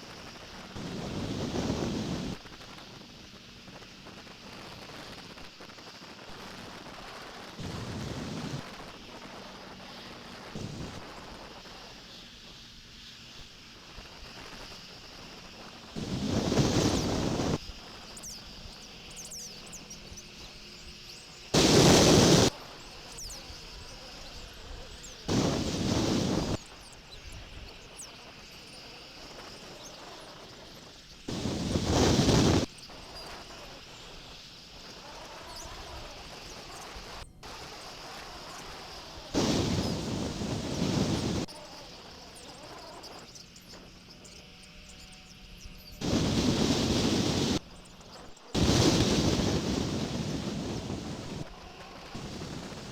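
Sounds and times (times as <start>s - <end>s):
faint bird chirps: 9.2s - 49.6s
eagle wings flapping: 13.9s - 18.0s, 21.6s - 26.6s, 27.4s - 41.4s, 46.0s - 47.6s, 48.4s - 52.9s.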